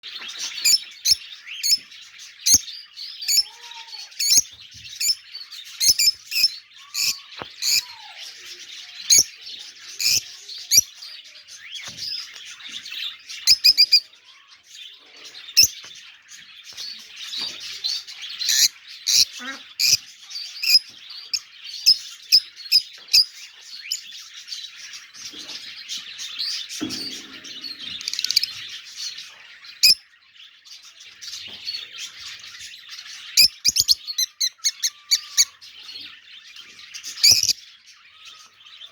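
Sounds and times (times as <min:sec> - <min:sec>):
parrots chattering and chirping: 0:00.0 - 0:38.9.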